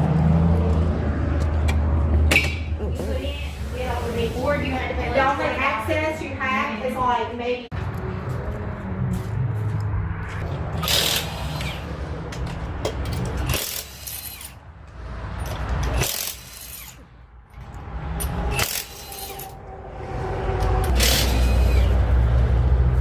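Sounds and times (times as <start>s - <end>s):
low rumble: 7.7s - 13.6s, 17.0s - 23.0s
pneumatic impact wrench bursts: 10.8s - 11.9s, 13.4s - 14.6s, 15.8s - 17.0s, 18.5s - 19.5s, 20.9s - 22.0s.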